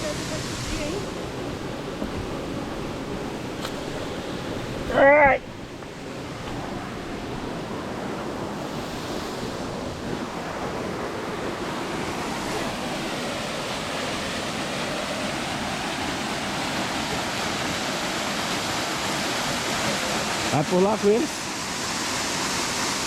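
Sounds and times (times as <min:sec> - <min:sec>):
waterfall and river rapids roaring: 0:00.0 - 0:23.0.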